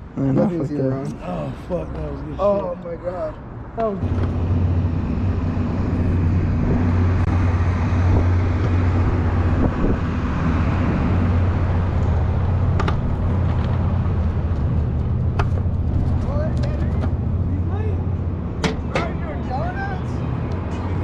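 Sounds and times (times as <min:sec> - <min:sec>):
electric scooter hum: 0:03.8 - 0:16.3
wind on microphone: 0:04.0 - 0:17.0.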